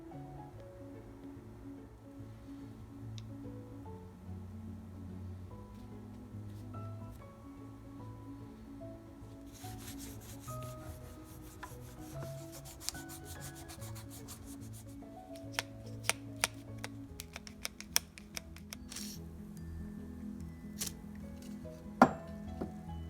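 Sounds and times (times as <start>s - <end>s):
soft background music: 0.0s - 23.0s
hand scrubbing bicycle part: 9.5s - 19.2s
sharp clicks and taps: 15.4s - 19.0s.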